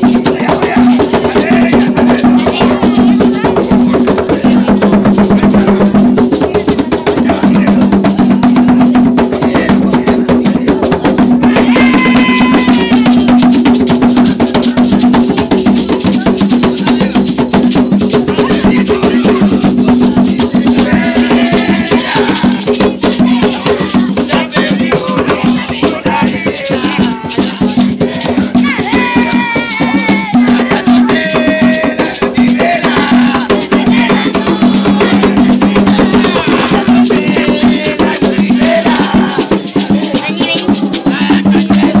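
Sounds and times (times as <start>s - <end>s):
voices: 0.0s - 42.0s
rattles shaken fast: 38.8s - 41.8s.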